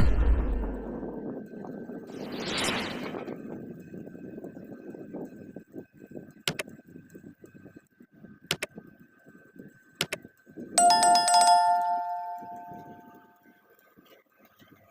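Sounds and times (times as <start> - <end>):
sharp clicks: 6.5 - 6.7, 8.5 - 8.7
metallic bell-like ding: 10.8 - 13.3.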